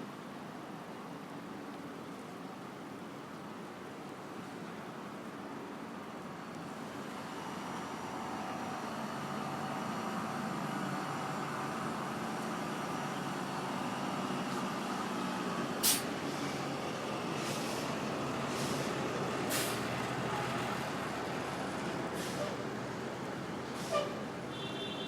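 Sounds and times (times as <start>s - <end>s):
city street traffic: 0.0s - 25.0s
heavy vehicle engine running: 6.7s - 24.6s
short sharp hiss: 15.8s - 16.1s, 17.4s - 19.9s, 22.2s - 22.6s, 23.8s - 24.2s.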